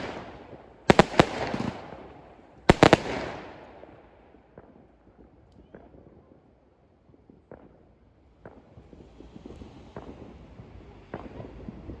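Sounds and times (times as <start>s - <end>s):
distant fireworks bangs: 0.0s - 4.7s
fireworks crackles: 0.0s - 4.7s.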